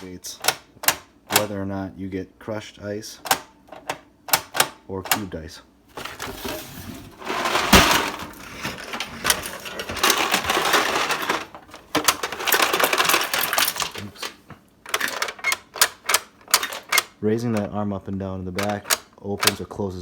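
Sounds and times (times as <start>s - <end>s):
ice and plastic clattering: 5.9s - 17.1s.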